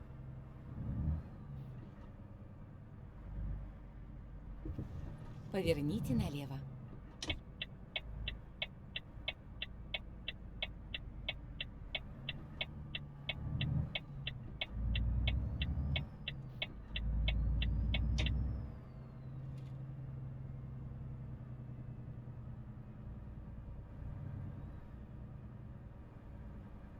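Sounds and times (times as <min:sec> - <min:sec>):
diesel truck engine rumbling: 0:00.0 - 0:22.2
turn signal ticking: 0:06.9 - 0:18.6.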